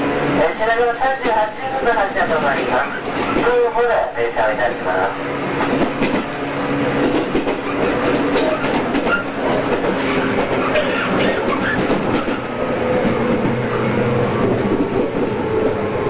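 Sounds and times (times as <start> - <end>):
steady rail noise: 0.0 - 16.0.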